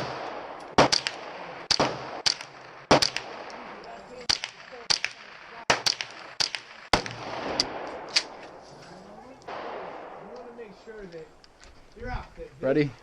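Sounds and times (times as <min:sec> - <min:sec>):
gunshots: 0:00.0 - 0:08.6, 0:09.4 - 0:11.0.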